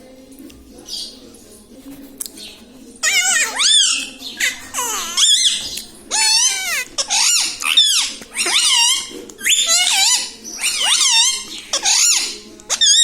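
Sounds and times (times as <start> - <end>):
parrot high-pitched calls: 3.0 - 13.0.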